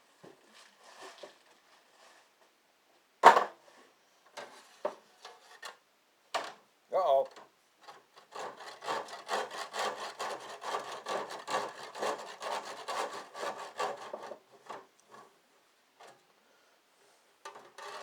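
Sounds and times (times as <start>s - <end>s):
hand saw cutting: 8.3s - 14.4s.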